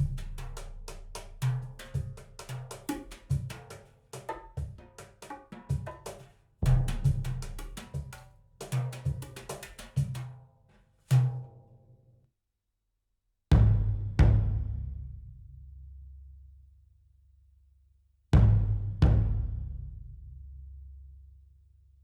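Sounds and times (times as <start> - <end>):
percussion music over loudspeakers: 0.0 - 10.2.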